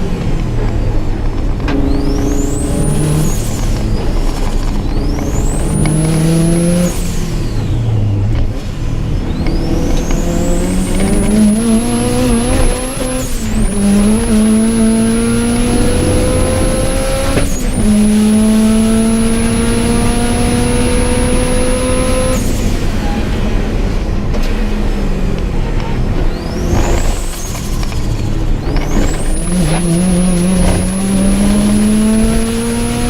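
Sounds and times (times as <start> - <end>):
car engine revving through gears: 0.0 - 33.0
high whine: 0.0 - 33.0.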